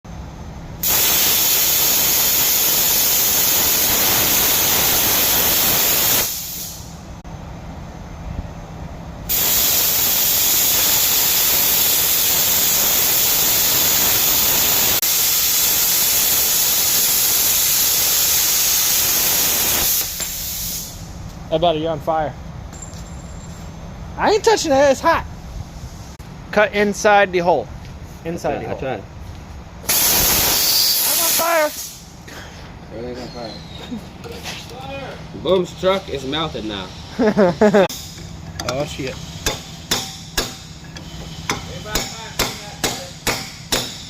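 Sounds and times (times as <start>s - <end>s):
plasma cutter hissing: 0.8s - 7.0s, 9.3s - 21.1s, 29.9s - 32.1s, 36.2s - 44.0s.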